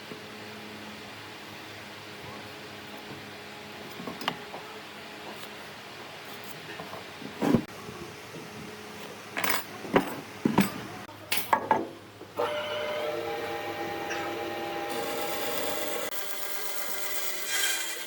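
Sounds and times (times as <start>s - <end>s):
power tool running on wood: 12.4s - 18.0s.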